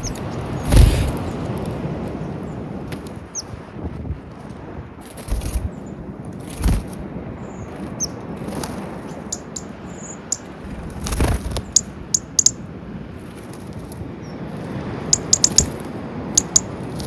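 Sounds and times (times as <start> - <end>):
wings fluttering: 0.0 - 1.6, 5.0 - 7.0, 7.7 - 12.6, 13.2 - 17.0
short high bird chirps: 9.1 - 10.4, 11.6 - 12.6, 15.1 - 15.8, 16.4 - 16.7
pecking clicks: 9.2 - 9.7, 11.6 - 12.6, 15.1 - 15.8, 16.4 - 16.7.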